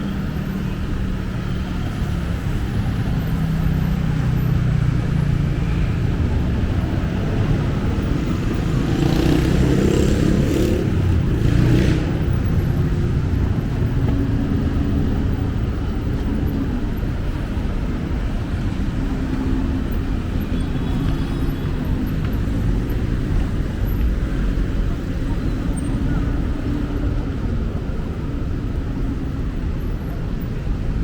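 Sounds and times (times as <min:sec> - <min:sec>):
traffic rumble of engines and tyres: 0:00.0 - 0:31.0
loud vehicle passing: 0:06.0 - 0:15.6.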